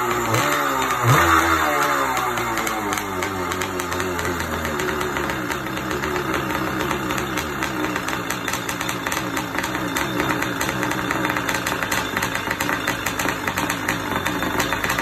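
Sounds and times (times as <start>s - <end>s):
two-stroke engine idling: 0.0s - 15.0s.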